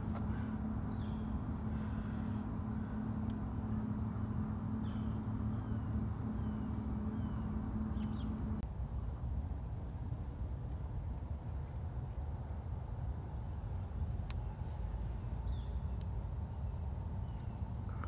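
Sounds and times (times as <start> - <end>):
small birds chirping: 0.0 - 8.7, 13.5 - 18.0
steady low hum: 0.0 - 18.0.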